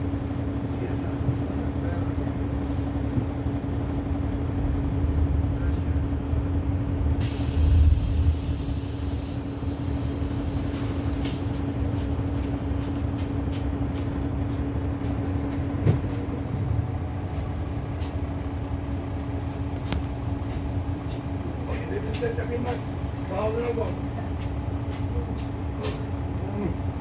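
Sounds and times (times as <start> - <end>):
bus engine and road rumble: 0.0 - 27.0
constant hum: 0.0 - 27.0
hiss: 7.2 - 11.4.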